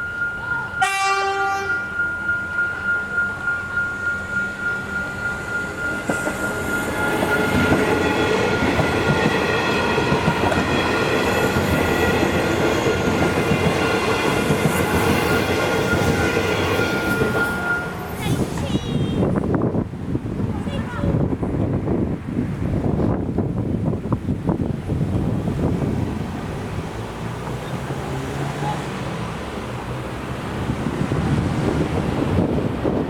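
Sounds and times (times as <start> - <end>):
level crossing bells ringing: 0.0 - 9.0, 12.5 - 18.9.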